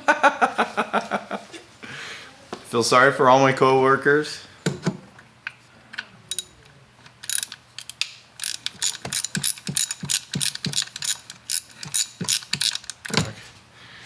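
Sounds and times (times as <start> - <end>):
socket ratchet wrench clicking: 6.3 - 6.5, 7.2 - 13.2.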